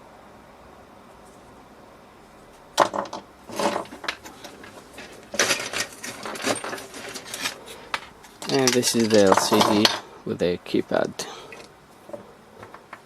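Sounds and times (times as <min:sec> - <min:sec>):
machine parts knocking on work surface: 0:02.8 - 0:10.0.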